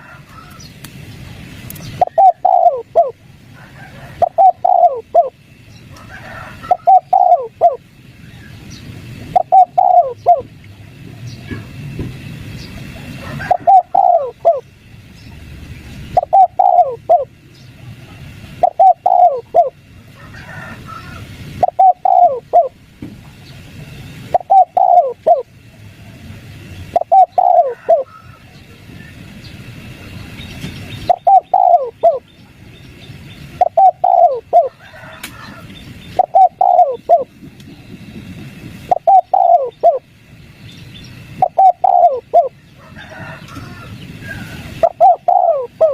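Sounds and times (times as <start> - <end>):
dove cooing: 1.9 - 7.9, 9.2 - 10.6, 12.8 - 14.7, 16.0 - 17.4, 18.4 - 22.8, 24.3 - 25.6, 26.8 - 28.6, 31.0 - 32.3, 33.6 - 37.4, 38.8 - 40.1, 41.3 - 45.9.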